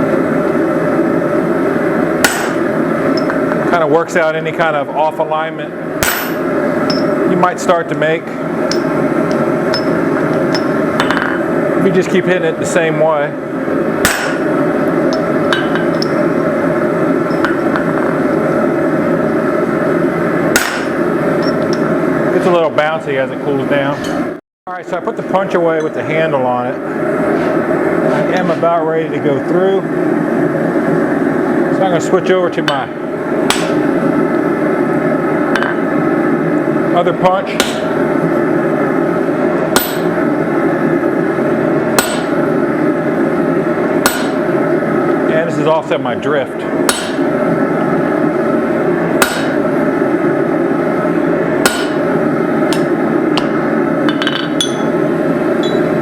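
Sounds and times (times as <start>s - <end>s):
steady background noise: 0.0s - 56.0s
hammer striking steel: 2.2s - 2.6s, 6.0s - 7.2s, 8.7s - 9.0s, 9.7s - 11.4s, 14.0s - 14.5s, 15.1s - 16.2s, 20.6s - 21.8s, 33.5s - 33.8s, 37.6s - 37.9s, 39.8s - 40.1s, 42.0s - 42.4s, 44.0s - 44.4s, 46.9s - 47.2s, 49.2s - 49.6s, 51.6s - 52.1s, 52.7s - 55.0s, 55.6s - 55.9s
metallic clinks on anvil: 54.6s - 54.9s.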